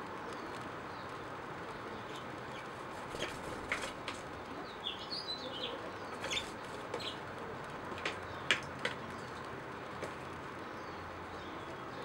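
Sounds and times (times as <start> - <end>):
steady background hiss: 0.0 - 12.0
small bird chirping: 4.6 - 7.2.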